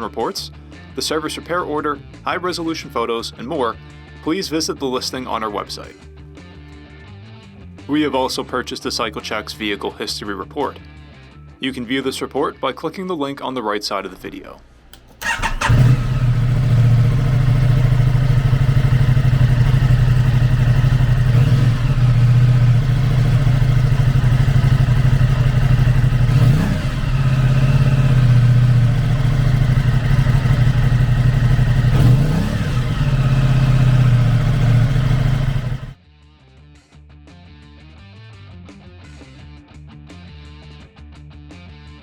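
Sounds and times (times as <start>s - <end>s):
engine revving: 15.0s - 36.0s
motorcycle engine idling: 15.2s - 36.0s.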